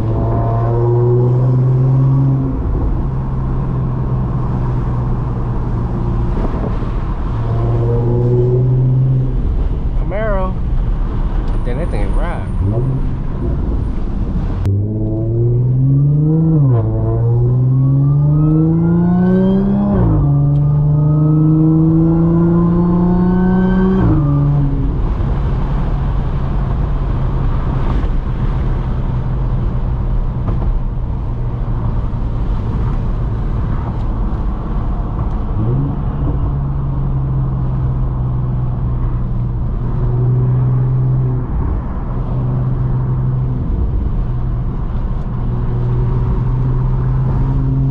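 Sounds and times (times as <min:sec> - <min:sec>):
road and wind noise: 0:00.0 - 0:47.9
car engine accelerating hard: 0:11.5 - 0:47.9.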